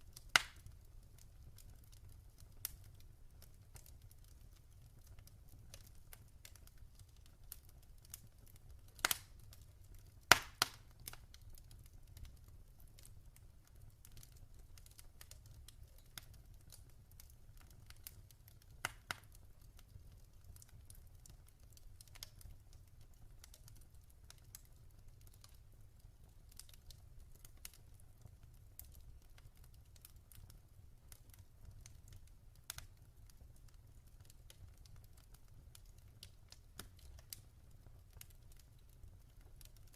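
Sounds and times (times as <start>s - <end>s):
wood fire crackling: 0.0s - 39.9s
fire pops: 0.2s - 0.8s, 5.0s - 9.6s, 10.2s - 11.6s, 14.1s - 19.4s.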